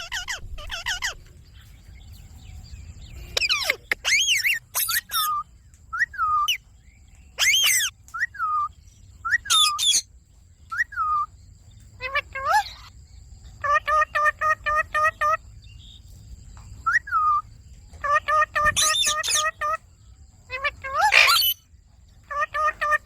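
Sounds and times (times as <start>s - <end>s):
parakeet chirping: 0.0s - 1.4s, 3.3s - 5.4s, 7.4s - 10.1s, 12.0s - 12.9s, 13.6s - 15.4s, 18.0s - 19.8s, 20.5s - 21.6s.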